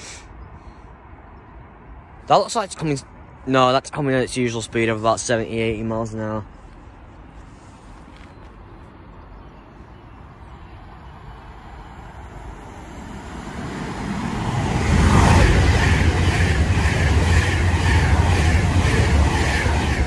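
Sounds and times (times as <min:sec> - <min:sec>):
electric train passing at speed: 0:08.6 - 0:20.0
wheels beating over rails: 0:12.2 - 0:20.0.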